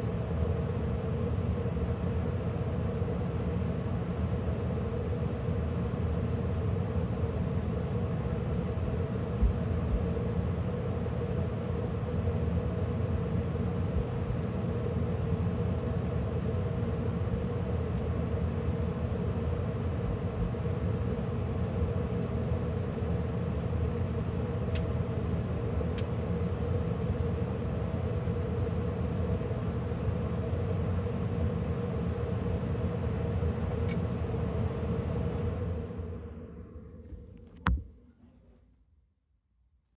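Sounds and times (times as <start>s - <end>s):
furnace blower fan running: 0.0s - 37.8s.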